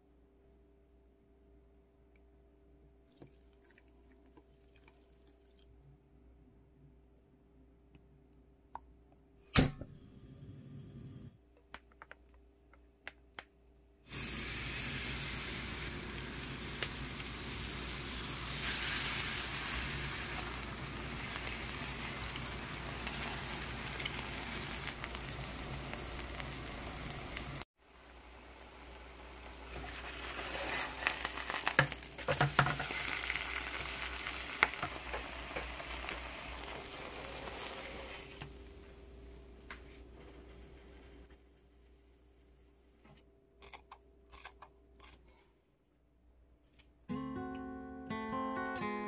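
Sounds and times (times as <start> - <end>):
oil crackling and popping: 14.1 - 27.7, 29.2 - 38.4
pancake sizzling in oil: 14.1 - 38.4.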